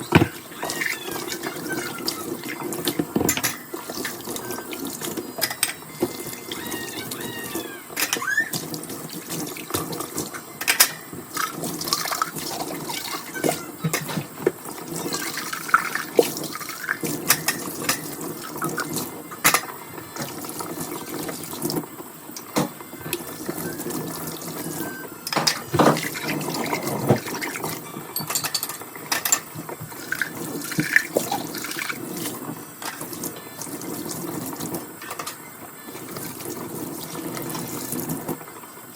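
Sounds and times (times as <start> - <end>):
dishes clinking: 0.0 - 0.8, 3.0 - 3.7, 28.1 - 29.6
running tap water: 0.0 - 38.9.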